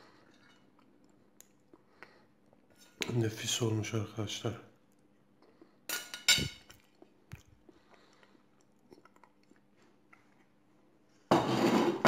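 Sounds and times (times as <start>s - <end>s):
faint chewing: 0.6s - 3.1s, 6.6s - 10.8s
fork clinking on plate: 5.9s - 6.7s.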